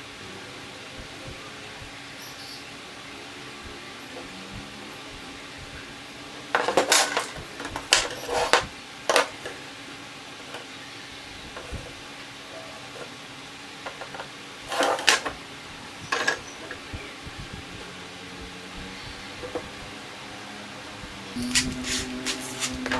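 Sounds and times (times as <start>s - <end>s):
small tools clinking and knocking: 6.5s - 9.6s, 13.8s - 15.4s, 16.1s - 16.8s.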